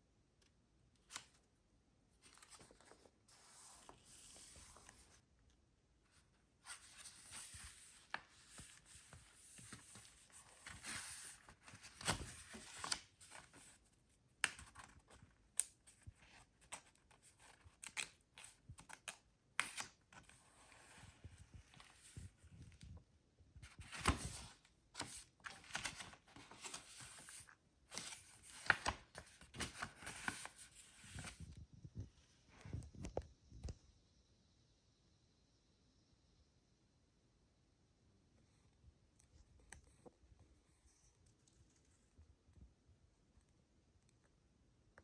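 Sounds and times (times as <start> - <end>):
paper rustling and scraping: 6.6 - 13.8, 23.6 - 31.6.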